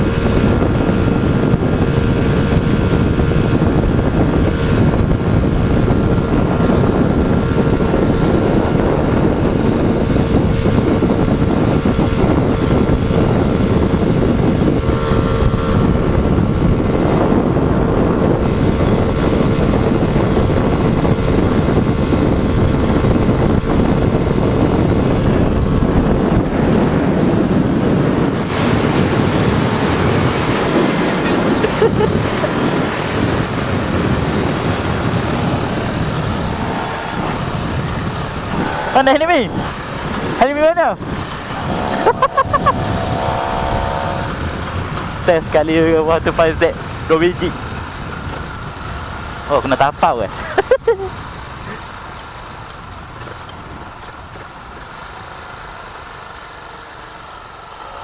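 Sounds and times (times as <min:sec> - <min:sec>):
motorcycle engine at speed: 0:00.0 - 0:58.0
wind buffeting microphone: 0:00.0 - 0:58.0.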